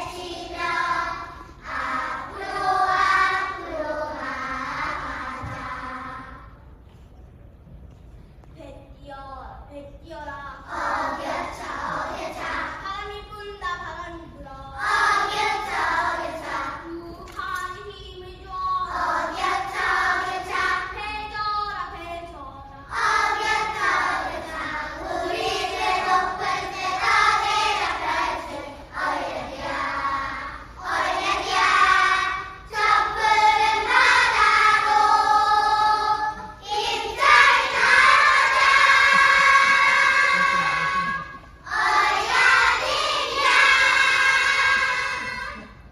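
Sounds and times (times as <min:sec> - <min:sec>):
children's choir singing: 0:00.0 - 0:06.8, 0:10.6 - 0:12.9, 0:14.7 - 0:17.4, 0:18.8 - 0:22.0, 0:22.8 - 0:45.9.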